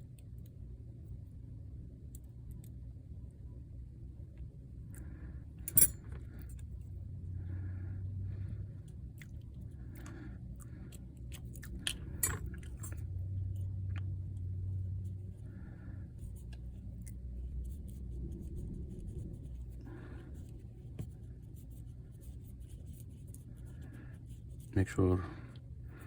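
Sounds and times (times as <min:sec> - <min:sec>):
steady low hum: 0:00.0 - 0:26.0
small metal tools clicking and scraping: 0:05.6 - 0:06.6, 0:11.4 - 0:13.0.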